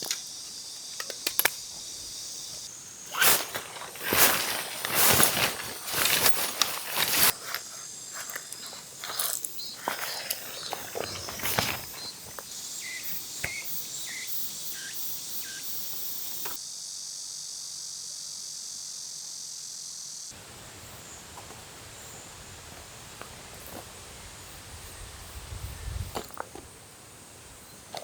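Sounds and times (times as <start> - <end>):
insects chorus: 0.0 - 28.0.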